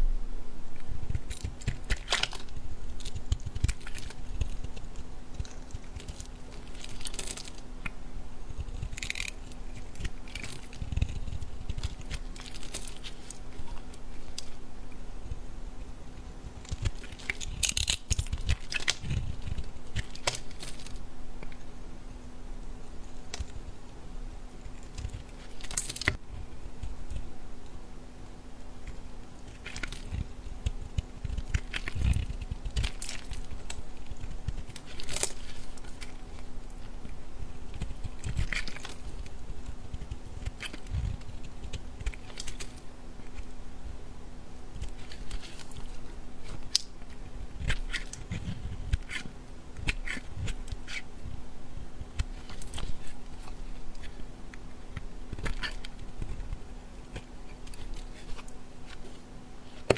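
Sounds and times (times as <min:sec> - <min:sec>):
steady low hum: 0:00.0 - 0:59.9
knife crunching bar soap: 0:01.1 - 0:15.4, 0:16.4 - 0:21.7, 0:28.8 - 0:43.6, 0:44.6 - 0:51.2, 0:51.8 - 0:59.9.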